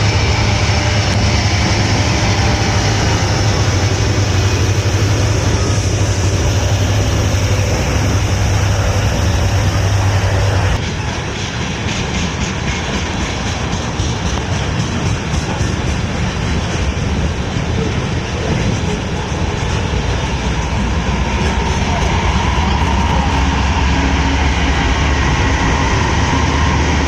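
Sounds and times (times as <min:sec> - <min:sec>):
low engine drone: 0:00.0 - 0:11.5, 0:20.2 - 0:27.0
train rushing past: 0:00.0 - 0:27.0.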